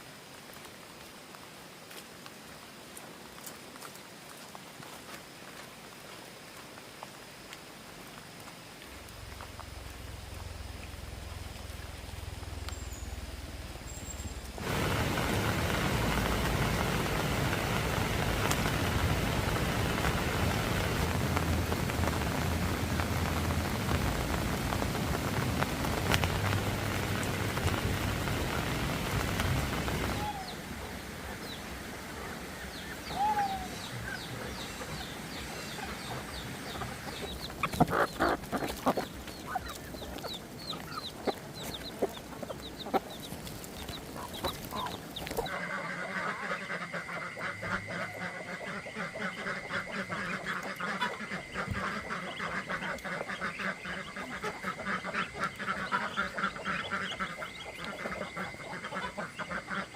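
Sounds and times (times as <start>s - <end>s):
steady rain: 0.0s - 59.9s
poultry chirping and clucking: 32.2s - 59.9s
ducks calling rapidly: 35.9s - 43.3s, 44.0s - 59.9s.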